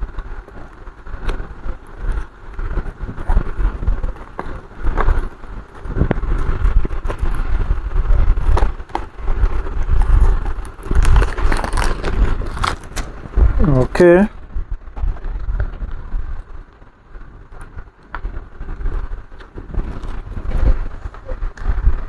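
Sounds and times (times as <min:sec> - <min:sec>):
low rumble: 0:00.0 - 0:22.0
plastic parts clicking and crackling: 0:00.2 - 0:14.1
sticky tape peeling off plastic: 0:08.3 - 0:13.2.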